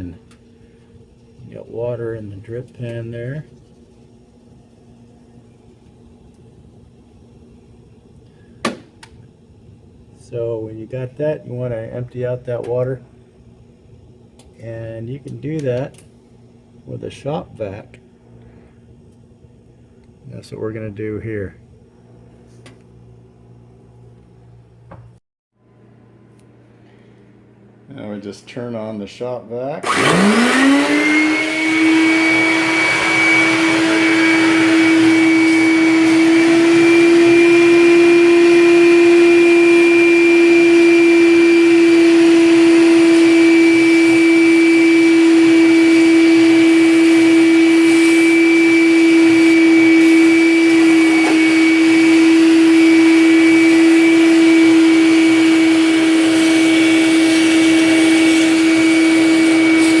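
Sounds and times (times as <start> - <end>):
shop vac motor whining: 0.0 - 16.1, 29.8 - 60.0.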